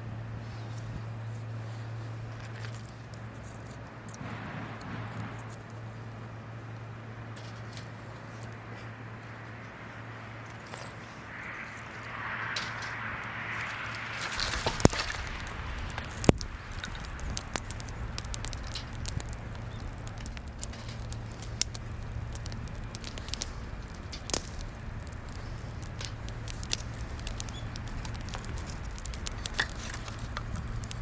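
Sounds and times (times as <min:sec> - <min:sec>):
wood fire crackling: 0:00.1 - 0:31.0
sharp pops: 0:11.7 - 0:31.0.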